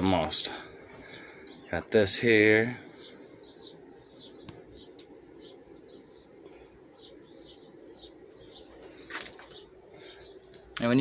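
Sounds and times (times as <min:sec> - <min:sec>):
faint small birds chirping: 0:00.0 - 0:11.0
low steady hum: 0:00.0 - 0:11.0.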